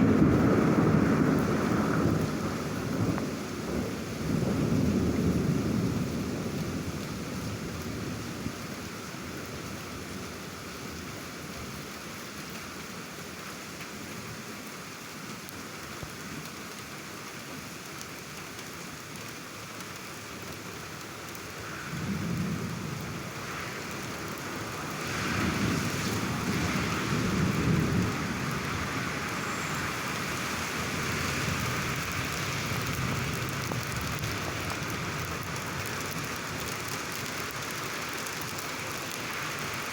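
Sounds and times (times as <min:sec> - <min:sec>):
thunder rumbling: 0:00.0 - 0:08.6, 0:21.6 - 0:37.0
steady rain falling: 0:00.0 - 0:39.9.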